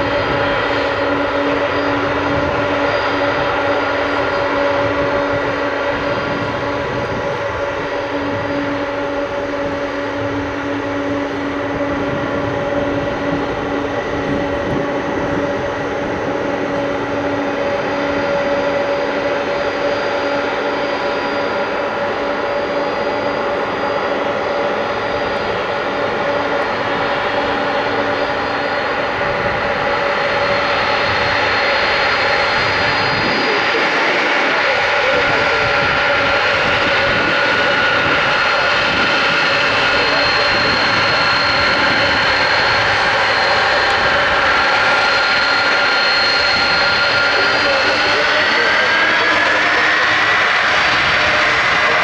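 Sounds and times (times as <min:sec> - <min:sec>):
jet engines running: 0:00.0 - 0:52.0.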